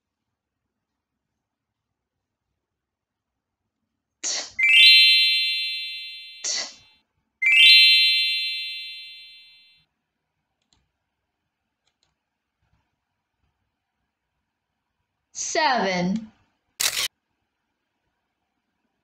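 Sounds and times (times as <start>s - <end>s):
electronic rising bell chime: 4.6s - 6.5s, 7.4s - 9.7s.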